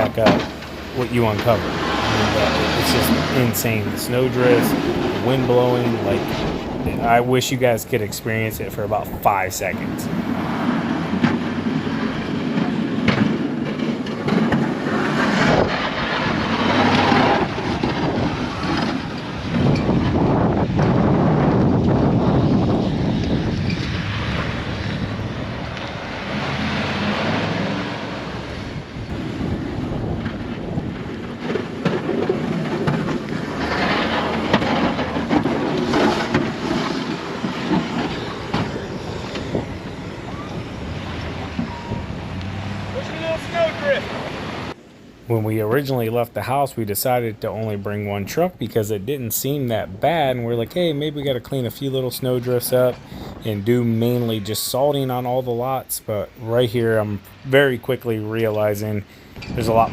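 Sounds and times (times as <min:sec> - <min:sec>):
blizzard wind gusting on microphone: 0:00.0 - 0:46.9, 0:47.5 - 0:59.9.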